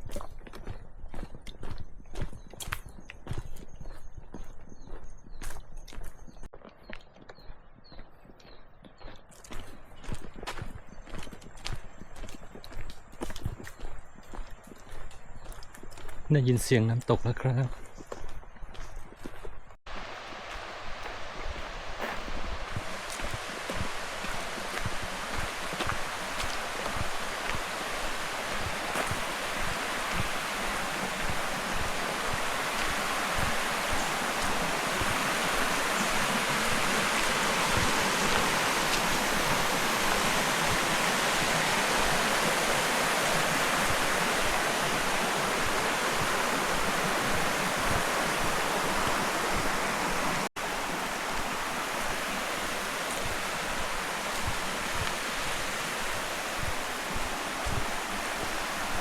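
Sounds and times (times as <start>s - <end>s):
waterfall rushing: 19.9s - 59.0s.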